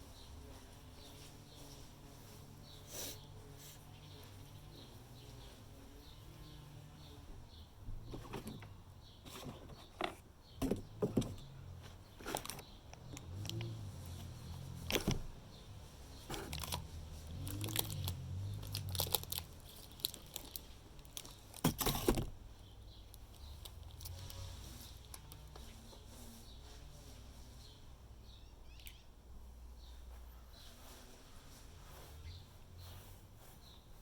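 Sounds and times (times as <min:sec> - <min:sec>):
packaging rustling: 0:12.2 - 0:15.2, 0:16.0 - 0:22.4.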